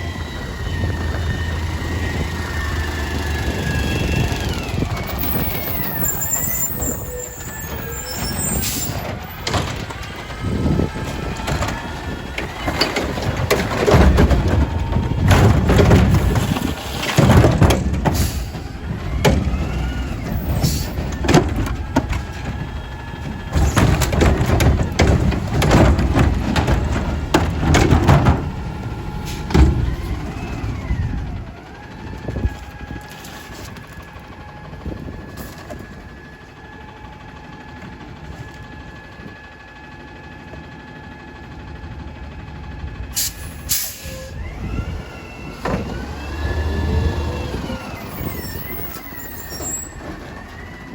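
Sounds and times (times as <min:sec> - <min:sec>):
truck diesel engine revving: 0:00.0 - 0:32.5, 0:41.6 - 0:50.9
trash being dumped clattering: 0:04.2 - 0:31.3
air brakes hissing: 0:05.1 - 0:09.7, 0:18.1 - 0:18.8, 0:19.8 - 0:21.2, 0:29.2 - 0:30.2, 0:43.1 - 0:45.3, 0:46.6 - 0:50.8.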